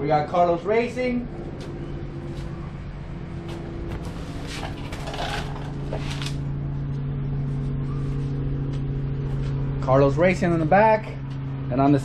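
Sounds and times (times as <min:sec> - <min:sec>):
low mechanical hum: 0:00.0 - 0:12.0
rustling and handling noises: 0:03.5 - 0:06.4.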